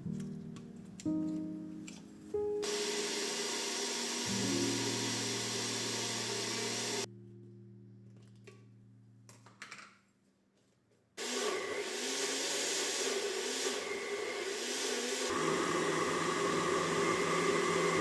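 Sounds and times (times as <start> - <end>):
kitchen appliance motor humming: 2.6 - 7.1, 11.2 - 18.0
loud steady whirring: 2.7 - 7.1, 11.2 - 18.0.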